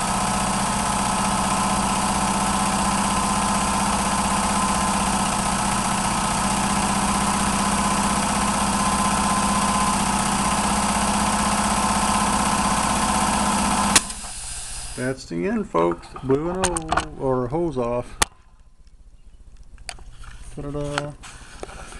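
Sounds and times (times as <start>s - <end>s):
air hose popping off: 0.0s - 15.1s
air engine running: 0.0s - 15.3s
exhaust hiss: 0.0s - 15.4s.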